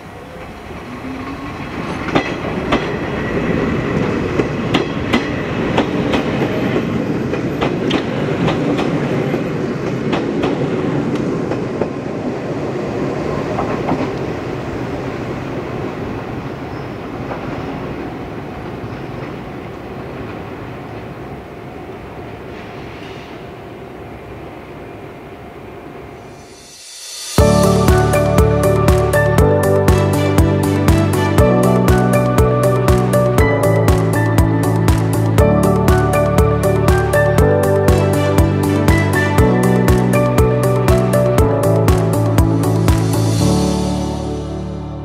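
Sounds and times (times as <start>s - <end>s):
train rumble: 0.0s - 45.0s
train wheels clicking over joints: 1.6s - 12.2s.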